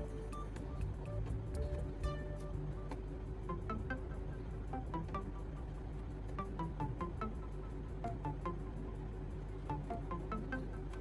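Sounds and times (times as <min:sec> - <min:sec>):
light plucked melody: 0:00.0 - 0:08.9
low accompaniment: 0:00.0 - 0:08.9.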